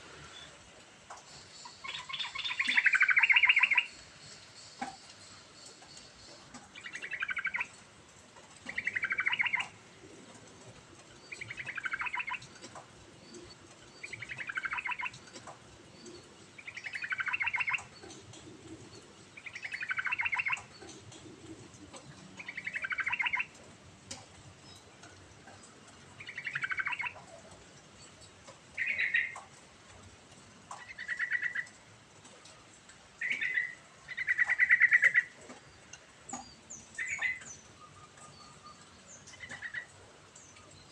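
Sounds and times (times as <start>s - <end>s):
bulbul singing: 1.4s - 4.0s, 4.6s - 7.8s, 8.7s - 9.7s, 11.3s - 15.4s, 16.0s - 18.2s, 19.4s - 21.3s, 22.0s - 23.5s, 26.2s - 27.3s.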